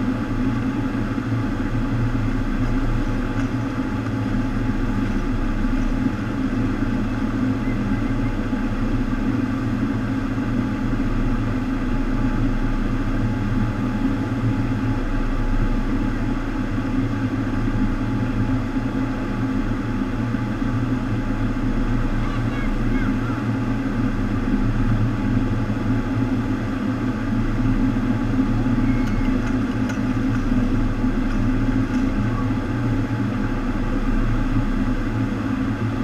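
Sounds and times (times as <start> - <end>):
low pump hum: 0.0 - 36.0.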